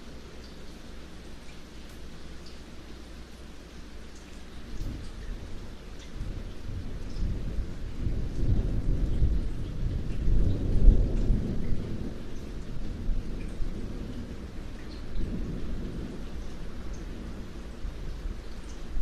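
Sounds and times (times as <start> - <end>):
steady rain falling: 0.0 - 19.0
thunder rolling: 6.2 - 18.0.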